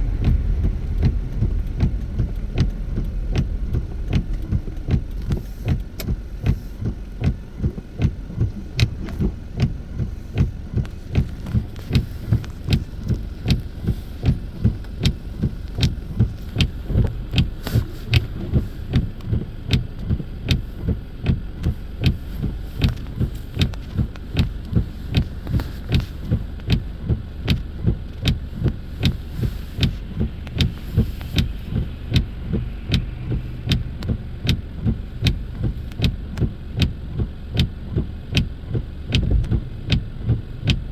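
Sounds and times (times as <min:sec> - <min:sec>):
engine and road noise in car: 0:00.0 - 0:40.9
windshield wipers thumping and clicking: 0:00.0 - 0:40.9.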